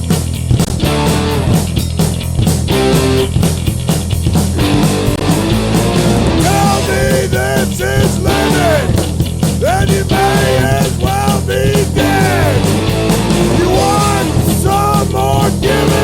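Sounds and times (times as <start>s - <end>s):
rock band playing: 0.0s - 16.0s
melody line over band: 2.6s - 3.5s, 4.5s - 16.0s.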